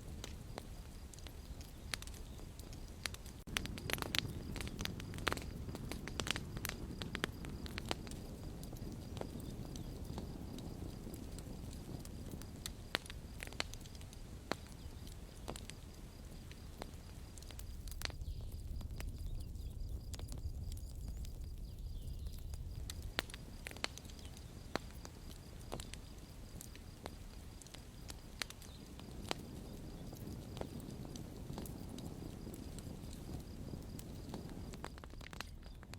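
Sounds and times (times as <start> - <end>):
campfire crackling and popping: 0.0 - 35.9.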